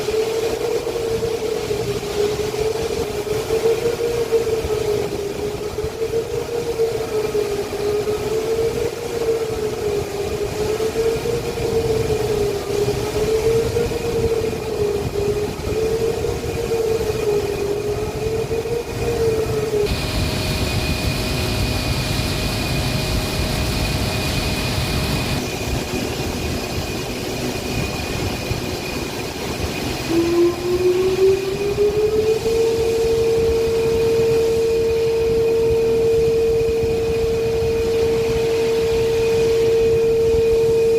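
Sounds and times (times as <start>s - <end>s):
wavering machine whine: 0.0s - 40.9s
steady high tone: 4.3s - 40.9s
heavy machinery rumble: 11.7s - 28.7s.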